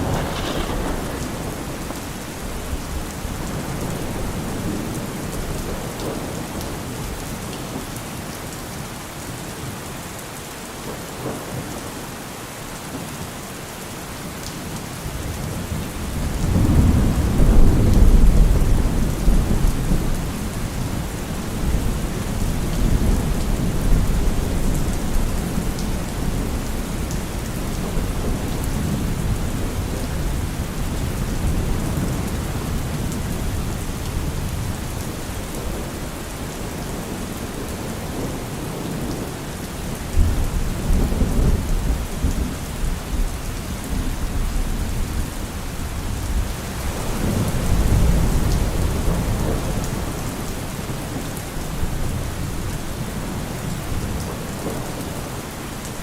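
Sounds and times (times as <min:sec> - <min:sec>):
thunder rumbling: 0:00.0 - 0:07.2, 0:15.2 - 0:39.2, 0:43.9 - 0:55.3
steady rain: 0:00.0 - 0:56.0.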